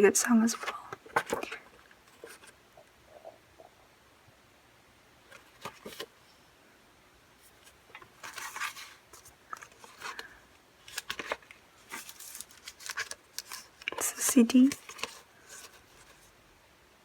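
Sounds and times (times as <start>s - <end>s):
packaging rustling: 5.3s - 6.1s, 7.6s - 16.3s.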